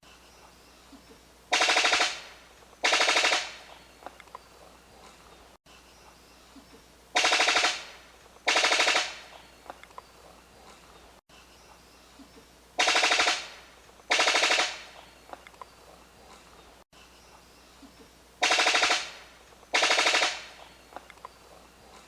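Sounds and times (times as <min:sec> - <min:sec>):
bird rattling call: 0:01.5 - 0:04.5, 0:07.2 - 0:10.0, 0:12.8 - 0:15.2, 0:18.4 - 0:21.5.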